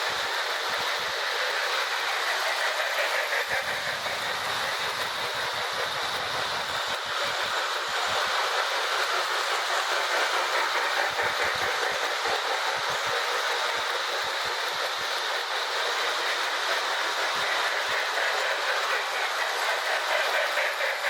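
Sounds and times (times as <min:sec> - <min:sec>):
toy train motor whir: 0:00.0 - 0:21.0
wheels clicking over rail joints: 0:00.0 - 0:21.0.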